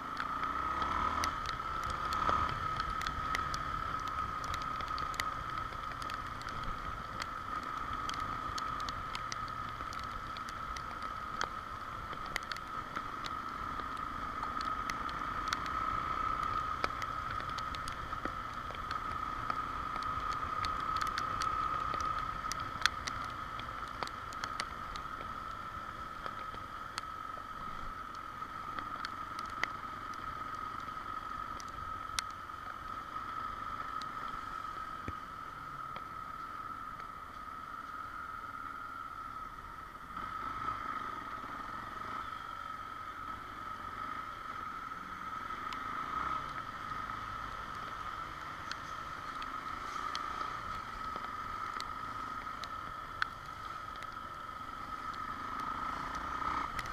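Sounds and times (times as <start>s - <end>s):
motorcycle riding noise: 0.0s - 56.9s
raindrops ticking on microphone: 0.0s - 56.9s.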